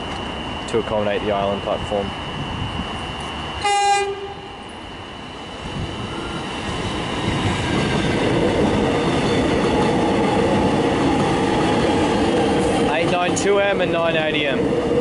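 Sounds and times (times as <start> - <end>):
train passing close by: 0.0 - 15.0
train horn toot: 3.6 - 4.6.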